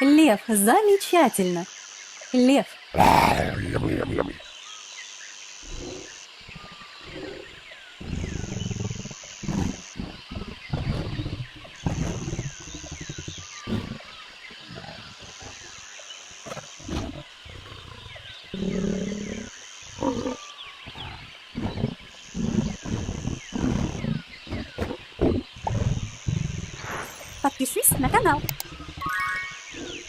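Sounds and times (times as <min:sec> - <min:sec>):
faint chirps: 0:00.0 - 0:30.0
lion roaring and grunting: 0:03.0 - 0:04.4, 0:05.6 - 0:15.8, 0:16.4 - 0:27.1.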